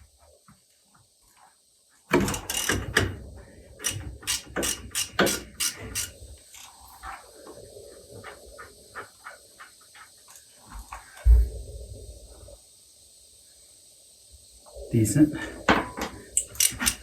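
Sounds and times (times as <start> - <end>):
socket ratchet clicking: 2.2 - 3.0, 3.8 - 6.7, 16.4 - 17.0.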